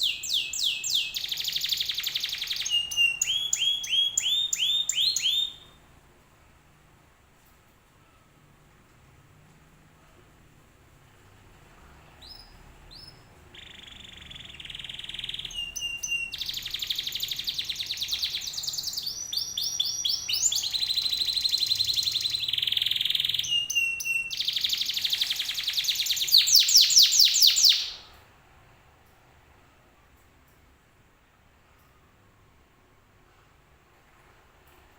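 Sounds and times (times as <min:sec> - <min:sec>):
canary singing trills: 0:00.0 - 0:05.8, 0:12.2 - 0:28.2.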